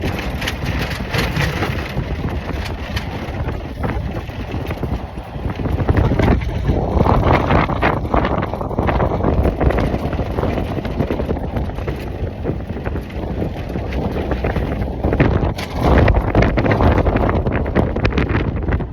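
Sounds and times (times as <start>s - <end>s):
truck rumbling: 0.0s - 18.9s
wind buffeting microphone: 0.0s - 18.9s.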